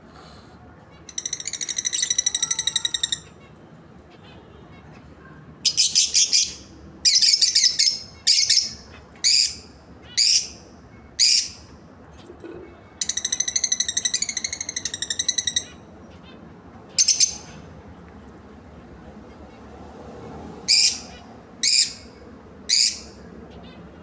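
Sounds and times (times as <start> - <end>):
birds chattering trill: 0.8 - 17.9, 20.7 - 24.0
shrill bird chirps: 0.9 - 3.5, 5.6 - 11.7, 13.0 - 17.6, 20.7 - 23.2.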